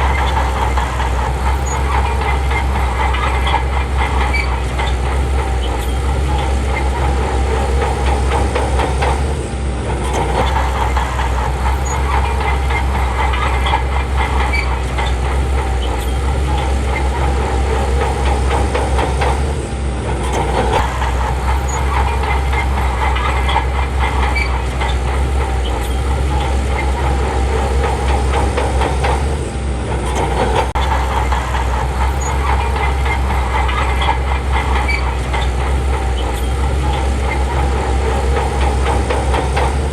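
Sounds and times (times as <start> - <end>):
bulldozer diesel engine running: 0.0 - 39.9
steel tracks clicking and clanking: 0.0 - 39.9.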